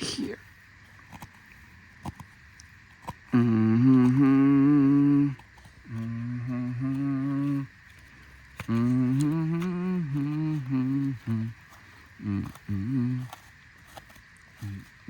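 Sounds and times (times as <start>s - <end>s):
person humming a slow tune: 3.3s - 7.9s, 8.6s - 13.5s, 14.5s - 15.0s.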